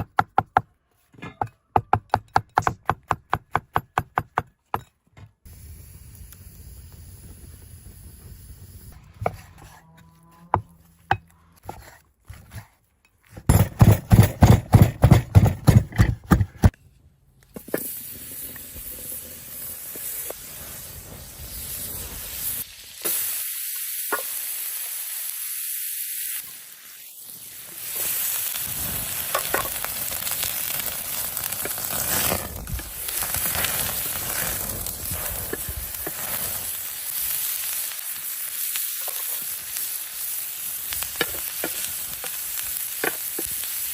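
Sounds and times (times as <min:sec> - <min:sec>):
mushrooms sizzling in a pan: 0:18.4 - 0:43.9.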